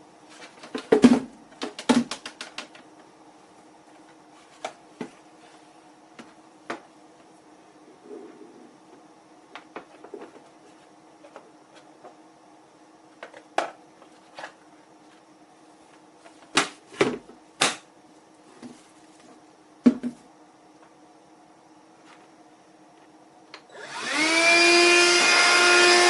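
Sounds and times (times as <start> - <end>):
faint steady hum: 0.0 - 26.0
clicks and knocks of objects handled: 0.3 - 2.9.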